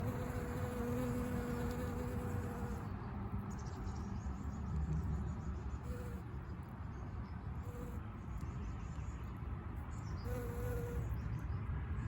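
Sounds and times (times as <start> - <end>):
bee buzzing: 0.0 - 2.8, 10.3 - 11.1.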